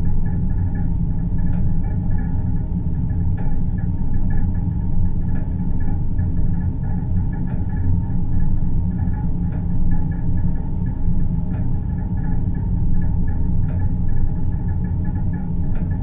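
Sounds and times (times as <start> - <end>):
deep rumbling drone: 0.0 - 16.0
soft ticks: 1.5 - 2.3, 13.0 - 16.0.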